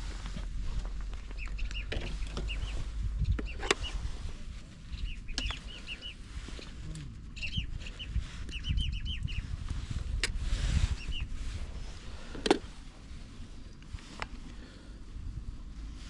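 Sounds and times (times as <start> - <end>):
low rumble: 0.0 - 16.0
birds chirping: 1.2 - 9.6, 10.9 - 11.4.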